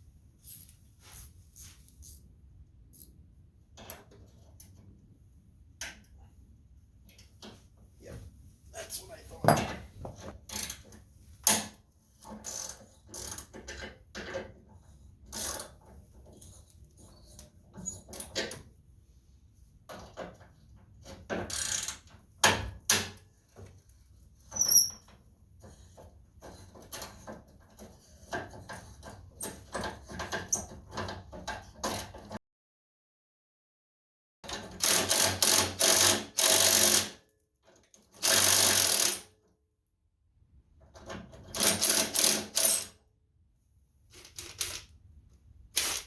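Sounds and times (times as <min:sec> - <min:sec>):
hand tools clanking on metal: 0:09.4 - 0:09.9
ratchet wrench clicking: 0:34.8 - 0:37.1, 0:38.2 - 0:39.2.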